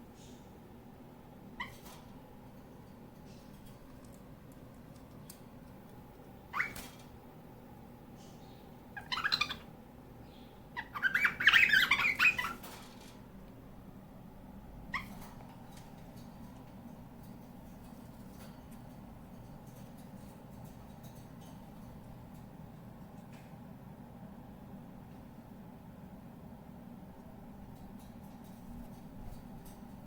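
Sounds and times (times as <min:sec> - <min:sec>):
cockatiel chirping and squawking: 0:06.5 - 0:07.0, 0:08.9 - 0:09.7, 0:10.8 - 0:12.7, 0:14.9 - 0:15.2.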